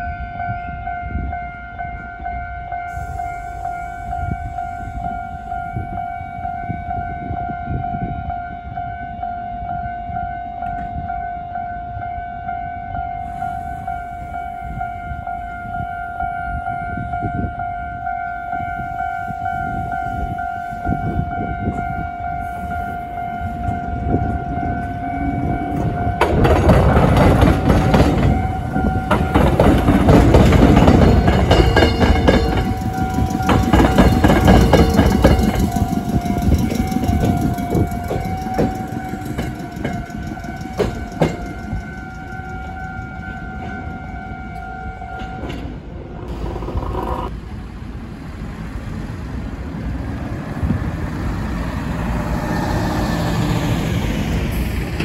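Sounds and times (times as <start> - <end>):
level-crossing warning signal ringing: 0.0 - 45.9
train wheels clattering: 25.7 - 44.1.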